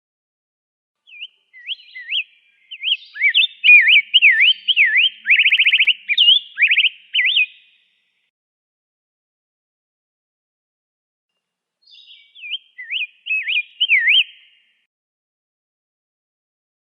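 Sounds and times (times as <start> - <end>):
bird singing warbled song: 1.0 - 8.3, 11.8 - 14.9.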